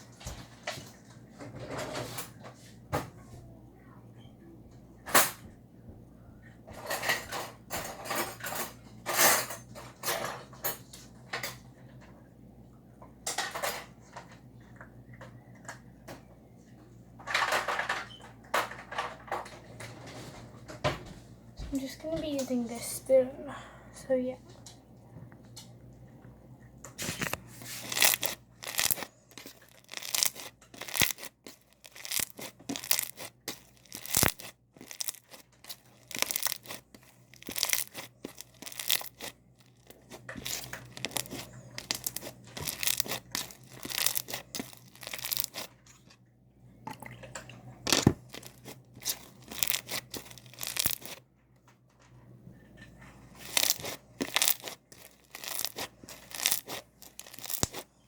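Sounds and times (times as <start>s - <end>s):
slime crackling and tearing: 27.7s - 45.7s, 48.2s - 51.2s, 53.4s - 57.9s.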